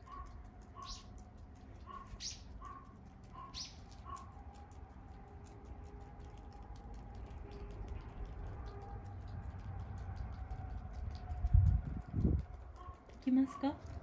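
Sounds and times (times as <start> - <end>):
songbird calling: 0.1 - 1.1, 1.9 - 4.2.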